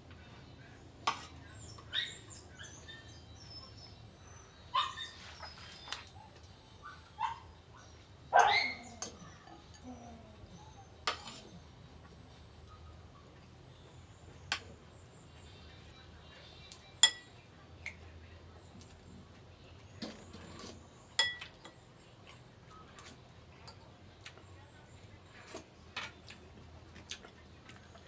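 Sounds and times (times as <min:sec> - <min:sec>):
dog barking: 0:06.2 - 0:07.5, 0:08.3 - 0:09.0.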